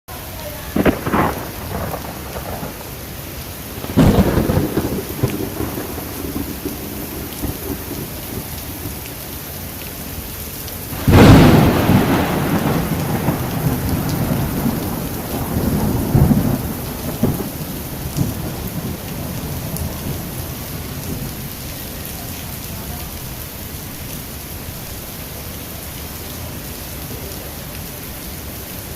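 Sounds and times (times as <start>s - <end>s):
heavy rain hissing: 0.1s - 28.9s
thunder claps and rumbles: 0.8s - 3.0s, 3.8s - 9.2s, 10.9s - 21.7s.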